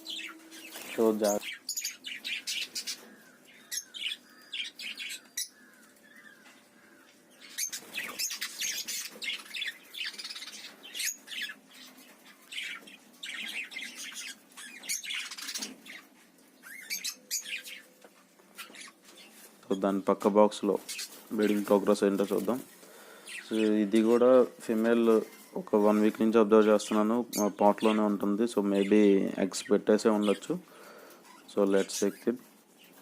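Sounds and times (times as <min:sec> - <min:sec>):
parrots chirping and squawking: 0:00.0 - 0:19.8, 0:20.8 - 0:24.2, 0:26.9 - 0:28.1, 0:30.2 - 0:32.2.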